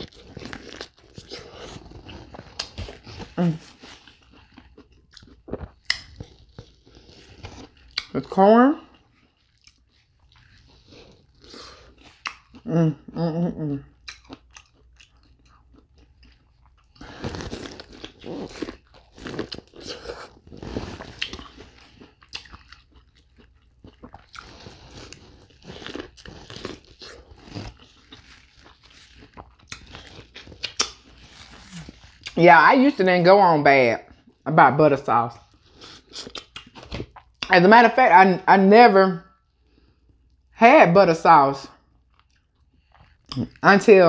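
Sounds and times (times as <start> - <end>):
chewing corn on the cob: 0.0 - 13.0, 13.8 - 32.4, 35.4 - 37.5, 41.9 - 43.6
person humming: 12.7 - 13.8.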